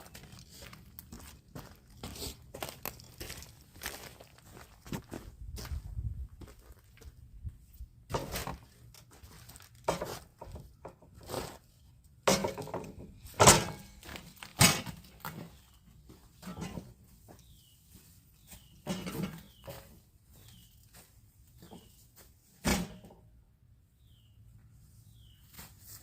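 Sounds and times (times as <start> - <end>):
work materials knocking and thumping: 12.3 - 15.4.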